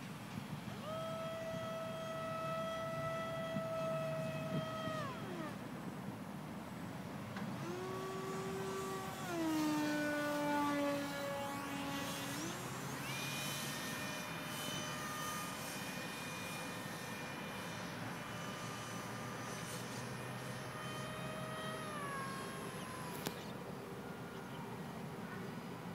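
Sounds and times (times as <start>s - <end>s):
electric ducted fan whining: 0.0s - 25.9s.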